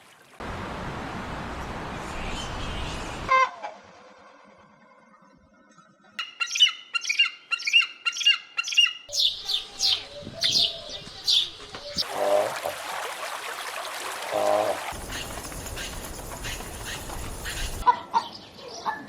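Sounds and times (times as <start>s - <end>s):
bird calls: 6.2s - 12.7s, 14.2s - 19.0s
higher sharp falling bird calls: 14.3s - 17.8s.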